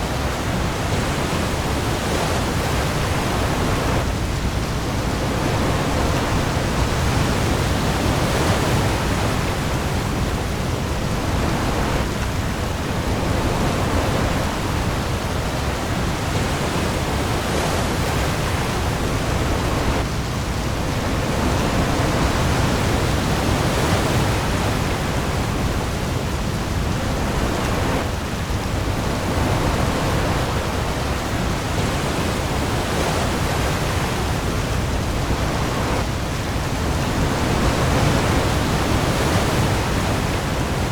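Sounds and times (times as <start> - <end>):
heavy rain on the sea: 0.0 - 40.9
waves: 0.0 - 40.9.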